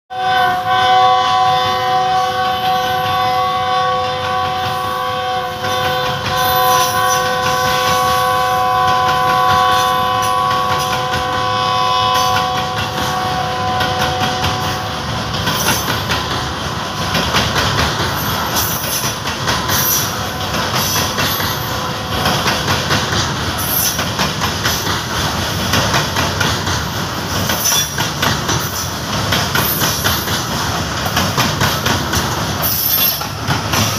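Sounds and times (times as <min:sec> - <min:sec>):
train horn chord: 0:00.1 - 0:15.1, 0:19.8 - 0:22.5
wheels clattering over rail joints: 0:12.1 - 0:33.9.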